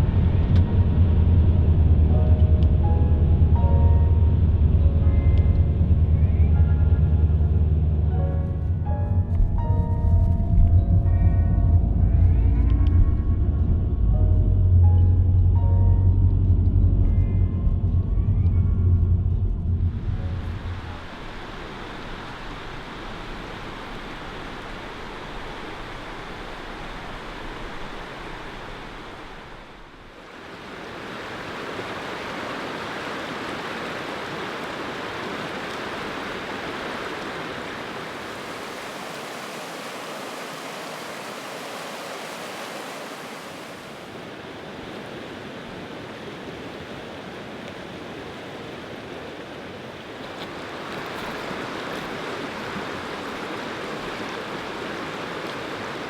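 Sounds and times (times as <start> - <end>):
river water rushing: 20.1 - 56.0.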